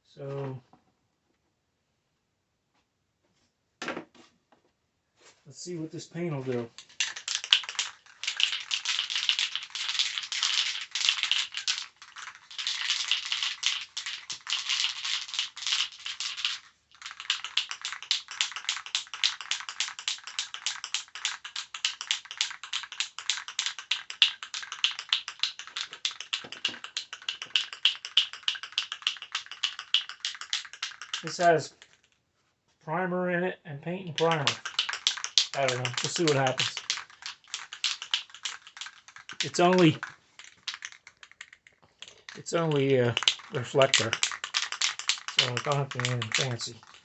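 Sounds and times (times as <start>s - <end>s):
spray paint can rattling: 6.4s - 32.2s, 34.1s - 47.0s.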